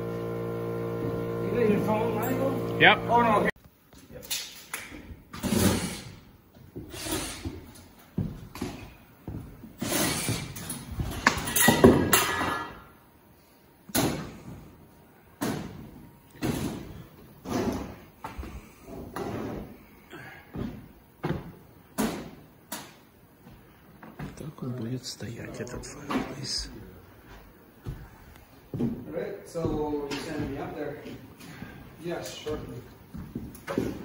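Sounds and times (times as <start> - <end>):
scrape: 6.9 - 7.4.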